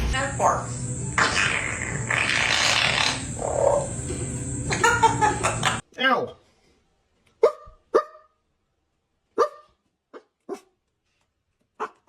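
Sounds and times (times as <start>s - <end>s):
parrot barking like a dog: 7.4s - 8.4s, 9.4s - 10.8s, 11.8s - 12.0s.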